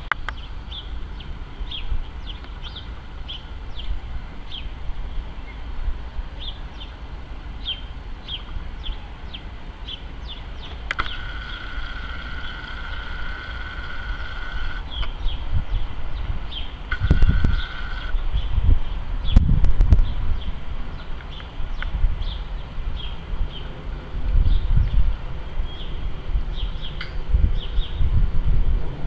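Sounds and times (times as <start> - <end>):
small birds chirping: 0.0 - 23.8, 24.4 - 28.2
high whine: 10.5 - 18.3.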